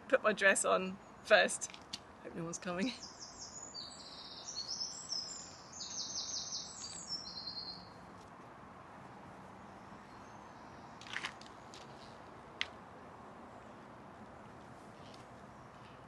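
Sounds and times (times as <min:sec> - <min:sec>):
songbird trilling: 0:03.0 - 0:07.9.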